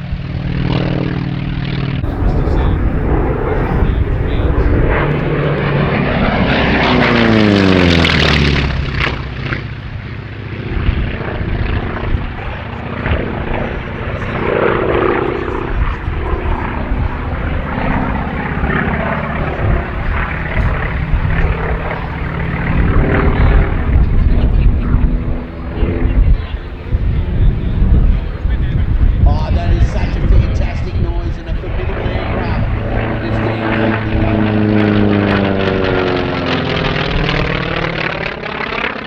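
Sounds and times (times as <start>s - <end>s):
propeller plane engine passing: 1.7s - 39.0s.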